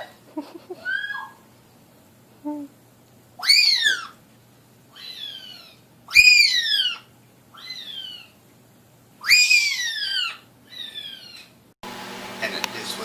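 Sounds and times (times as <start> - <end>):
parrot calling: 0.8 - 1.4, 3.4 - 4.2, 4.9 - 8.4, 9.2 - 11.6.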